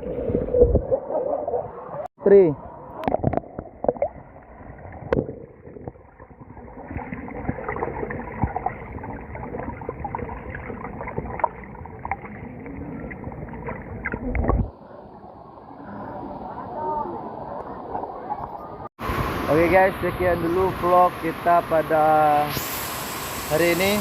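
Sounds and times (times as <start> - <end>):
muffled water splashing: 0.0 - 16.6.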